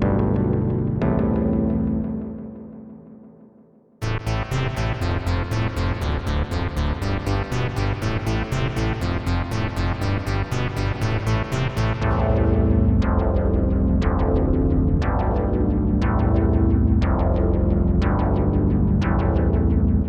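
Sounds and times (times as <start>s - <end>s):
low bass line: 0.0s - 2.6s, 4.0s - 20.0s
synthesizer pulse of bright notes: 4.0s - 20.0s.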